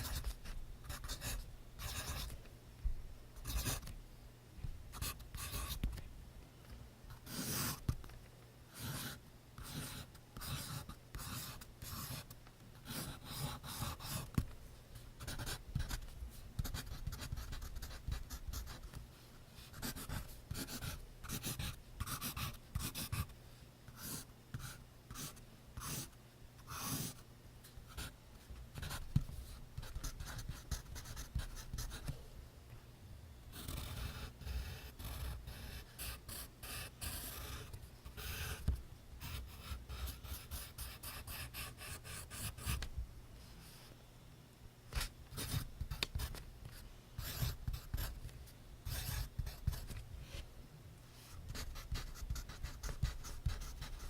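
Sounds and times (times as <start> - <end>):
pencil scratching on paper: 0.0 - 2.3, 5.0 - 5.8, 7.2 - 7.9, 8.7 - 14.3, 15.2 - 16.0, 16.6 - 18.9, 19.7 - 23.3, 26.7 - 27.2, 28.8 - 32.1, 33.5 - 42.8, 47.2 - 48.2, 48.9 - 50.4, 51.3 - 54.0.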